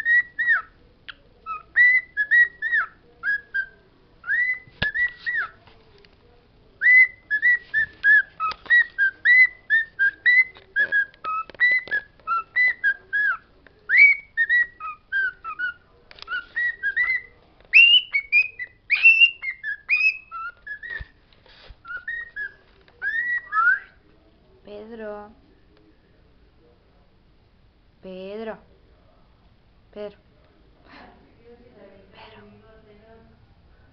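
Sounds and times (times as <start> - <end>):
bird whistling: 0.0 - 0.7, 1.5 - 5.6, 6.8 - 21.1, 21.8 - 24.0.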